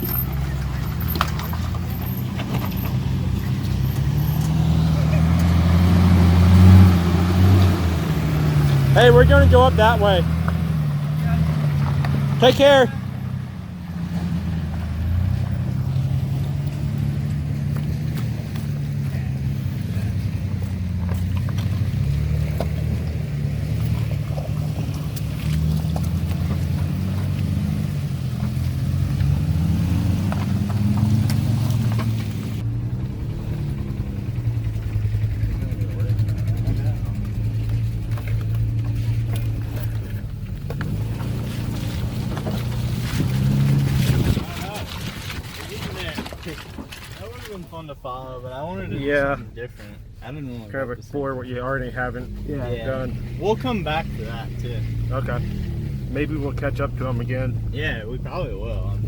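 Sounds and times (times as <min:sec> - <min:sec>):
truck knocks and rattles: 0:00.0 - 0:09.0, 0:14.0 - 0:47.6
pickup engine drone: 0:00.1 - 0:44.5.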